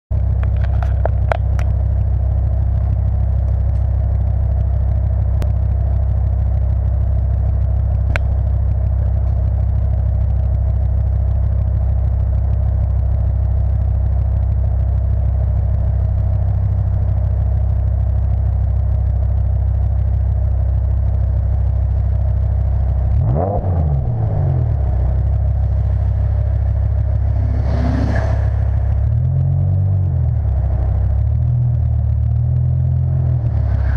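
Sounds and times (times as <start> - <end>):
car engine idling: 0.1 - 33.9
engine revving: 23.0 - 33.9.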